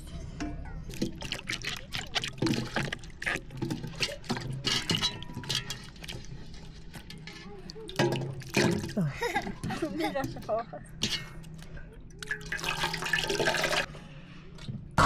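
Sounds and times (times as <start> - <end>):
water pouring and splashing: 0.9 - 10.5, 12.2 - 13.9
short splashes and knocks: 0.9 - 11.2.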